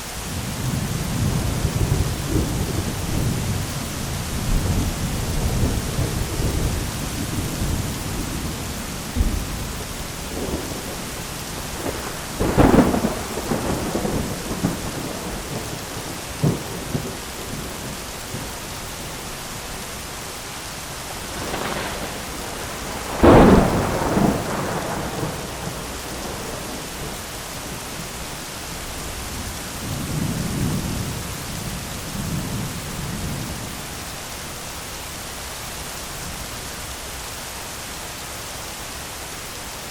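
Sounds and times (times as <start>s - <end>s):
heavy rain on an umbrella: 0.0s - 39.9s
thunder cracks and rumbles: 0.3s - 18.6s, 21.1s - 28.0s.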